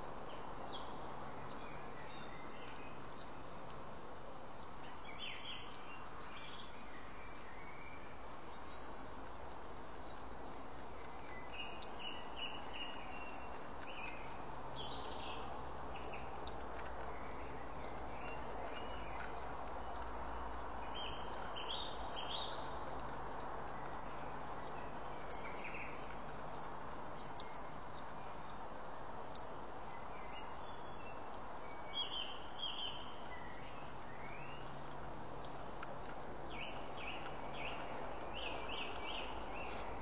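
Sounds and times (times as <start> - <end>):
steady outdoor hiss: 0.0 - 40.0
faint clicks: 0.2 - 6.8, 7.4 - 29.5
birds chirping: 0.2 - 28.8, 29.9 - 40.0.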